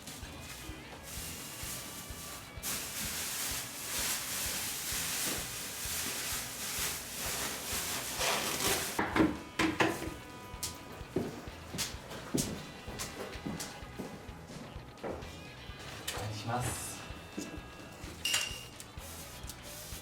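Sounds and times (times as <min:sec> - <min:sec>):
rough rustling hiss of cleaning: 0:00.0 - 0:09.0, 0:19.0 - 0:20.0.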